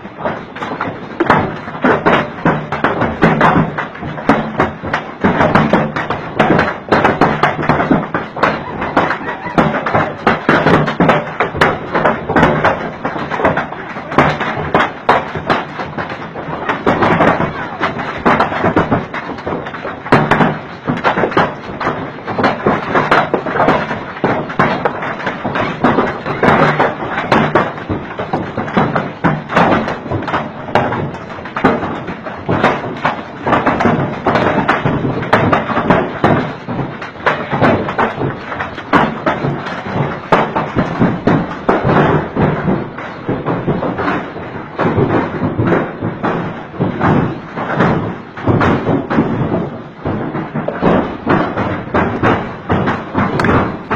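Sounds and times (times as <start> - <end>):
hailstones pelting hard surfaces: 0.0 - 53.9.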